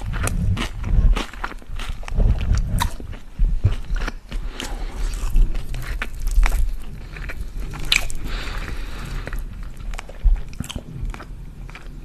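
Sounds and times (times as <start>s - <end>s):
wet mouth clicks: 0.0s - 6.7s
chewing food: 0.0s - 12.0s.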